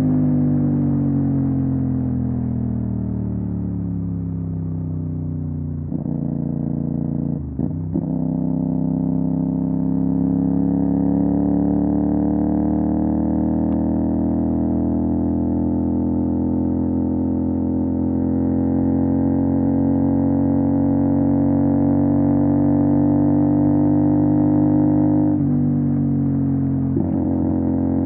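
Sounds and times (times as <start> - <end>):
motorcycle engine droning: 0.0 - 28.0.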